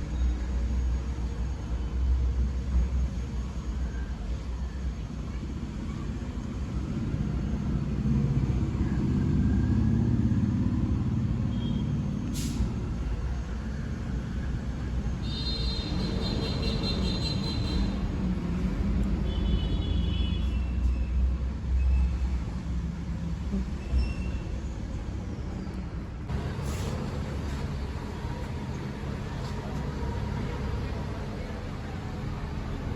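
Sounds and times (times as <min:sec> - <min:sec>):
car engine low rumble: 0:00.0 - 0:15.3, 0:20.9 - 0:32.9.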